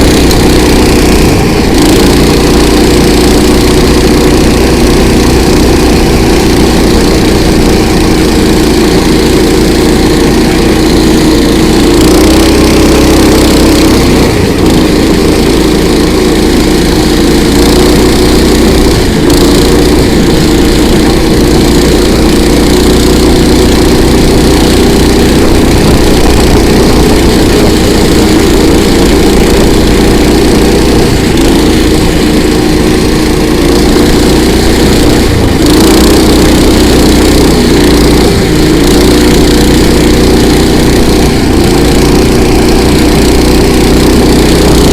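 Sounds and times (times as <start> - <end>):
small engine running under load: 0.0 - 44.9.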